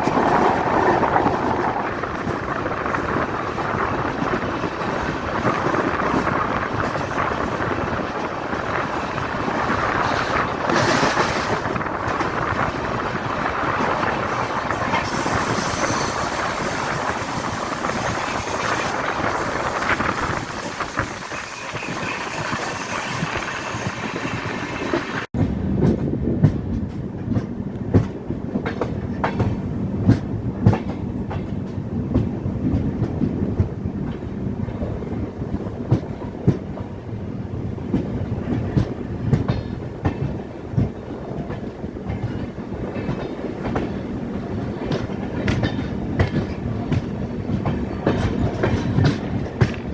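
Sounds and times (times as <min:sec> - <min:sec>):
train wheels running on rails: 0:00.0 - 0:49.9
high wheel squeal: 0:15.0 - 0:25.3
wheels clacking over rail joints: 0:37.9 - 0:49.9.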